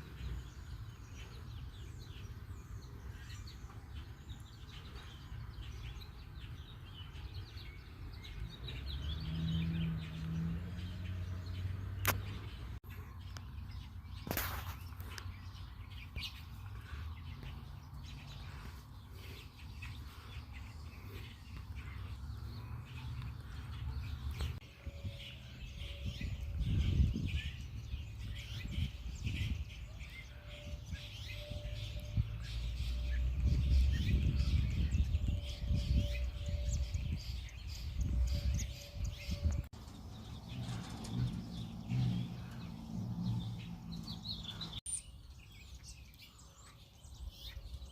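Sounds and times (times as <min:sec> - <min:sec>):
small birds chirping: 0:00.0 - 0:47.9
low buffeting rumble: 0:37.8 - 0:44.8.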